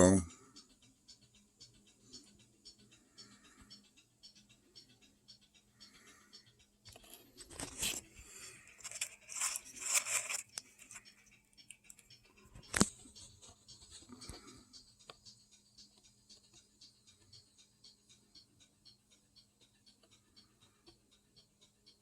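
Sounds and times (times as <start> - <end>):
faint ticks: 0.0 - 22.0
rustling and scraping handling: 6.9 - 12.0.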